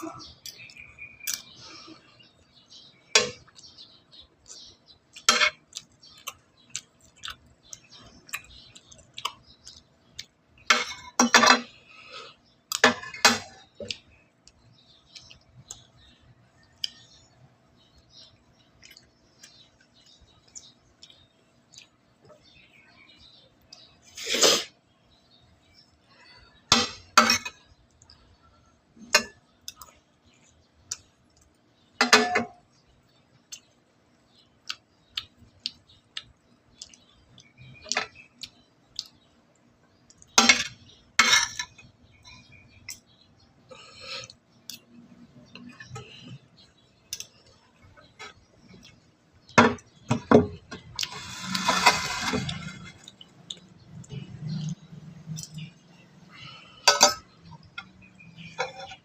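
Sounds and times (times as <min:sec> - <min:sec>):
utensils clinking on dishes: 0:10.7 - 0:11.7, 0:26.7 - 0:27.6, 0:32.0 - 0:32.6, 0:40.4 - 0:41.8, 0:49.6 - 0:53.1, 0:56.8 - 0:59.0.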